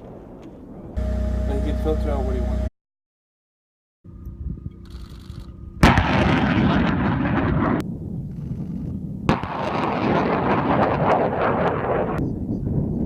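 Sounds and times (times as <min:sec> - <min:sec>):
rocket launch blast: 0:05.8 - 0:07.9, 0:09.2 - 0:12.2.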